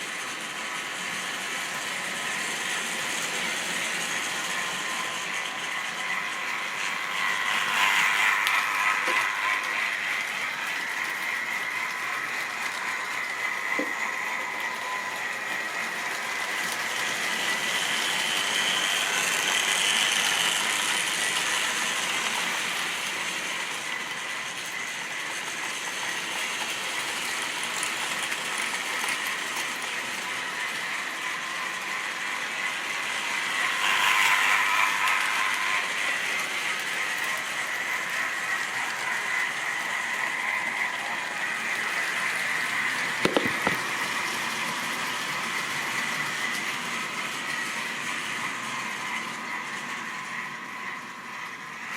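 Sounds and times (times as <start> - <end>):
model train motor whirring: 0.0 - 51.9
wheels clicking over rail joints: 43.1 - 43.9.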